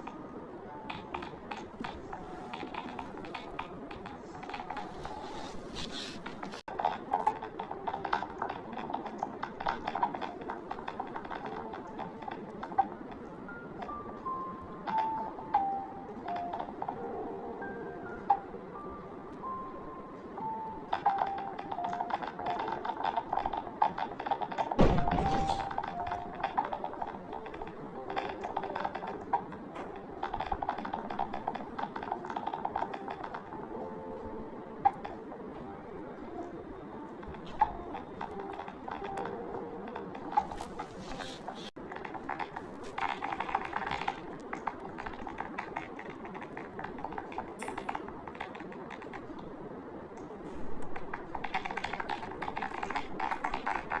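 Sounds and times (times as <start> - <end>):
fast typing on keyboard: 20.9 - 29.4, 37.9 - 49.4, 50.9 - 54.0.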